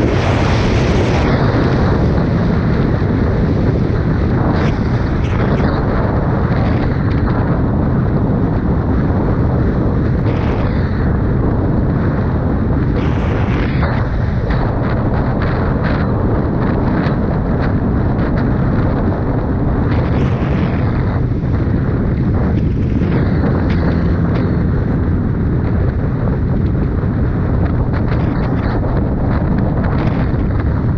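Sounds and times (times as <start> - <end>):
wind rush on microphone: 0.0 - 30.9
motorcycle engine running: 19.9 - 30.9.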